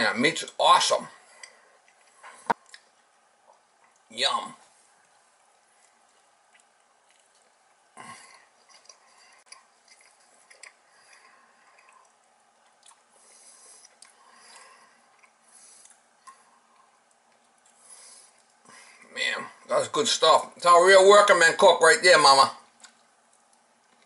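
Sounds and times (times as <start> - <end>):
person chewing food: 1.2 - 19.1, 22.7 - 24.0.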